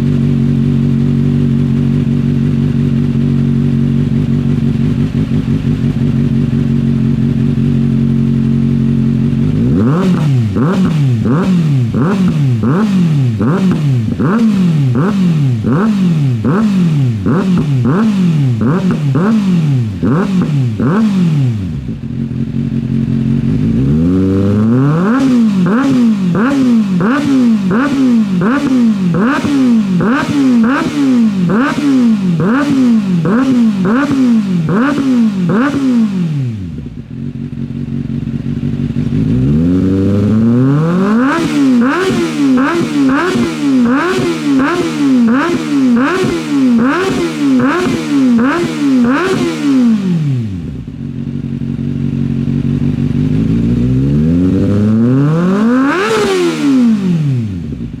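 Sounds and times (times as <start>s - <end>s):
motorcycle engine idling: 0.0s - 58.0s
motorcycle engine revving: 0.0s - 58.0s.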